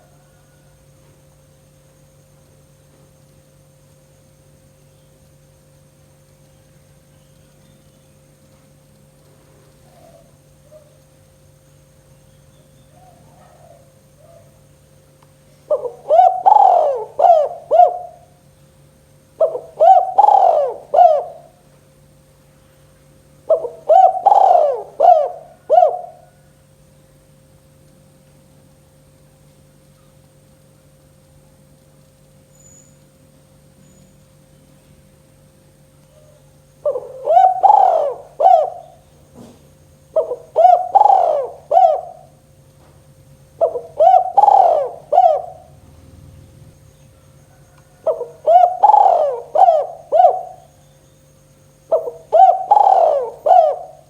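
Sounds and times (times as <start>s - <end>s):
dove cooing: 0.0s - 0.8s, 9.8s - 11.1s, 12.8s - 14.6s, 15.6s - 18.4s, 19.4s - 21.7s, 23.4s - 26.5s, 36.2s - 42.5s, 43.4s - 50.9s, 51.8s - 54.0s.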